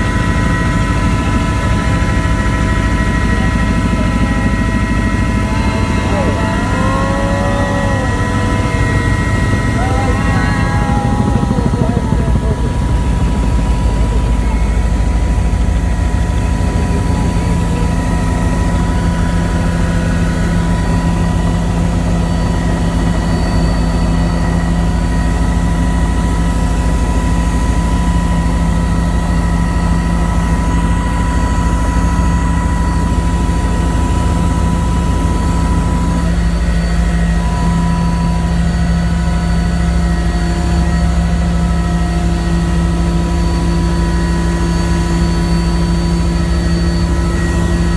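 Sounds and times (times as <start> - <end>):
helicopter rotor and engine drone: 0.0 - 47.9.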